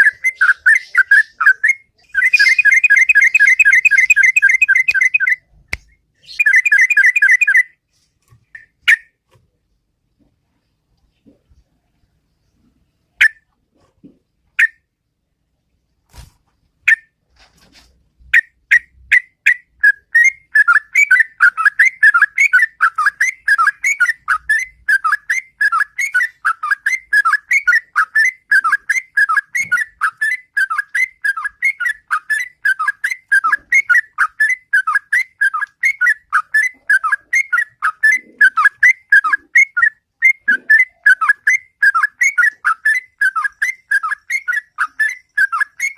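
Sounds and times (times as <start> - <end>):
bird singing: 0.0 - 7.8, 18.4 - 45.9.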